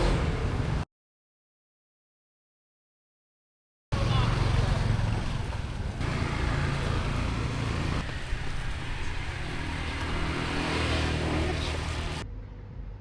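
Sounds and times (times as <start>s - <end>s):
street traffic noise: 0.0s - 0.8s, 3.9s - 13.0s
vehicle engine running: 4.0s - 12.2s.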